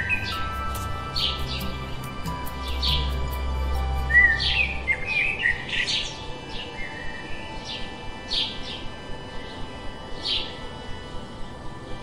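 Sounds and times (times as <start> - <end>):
birds chirping: 0.0 - 10.8
low hum: 0.0 - 12.0
soft background music: 0.0 - 12.0.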